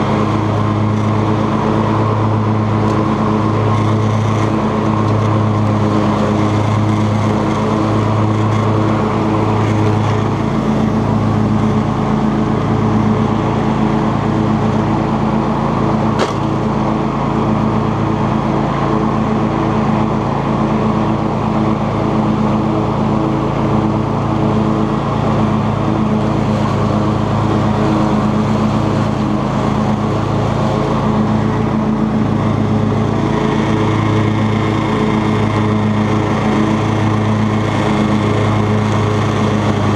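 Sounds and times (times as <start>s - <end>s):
lawn tractor engine running: 0.0s - 39.9s
mower cutting long grass: 0.0s - 39.9s.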